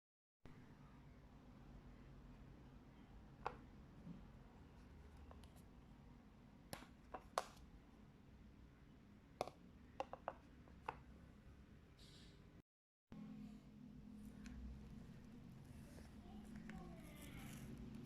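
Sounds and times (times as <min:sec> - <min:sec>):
faint steady hum: 0:13.2 - 0:18.0.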